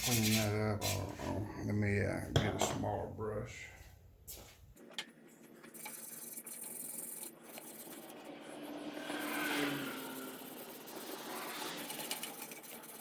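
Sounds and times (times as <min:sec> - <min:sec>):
wire brush scraping metal: 0:00.0 - 0:01.2.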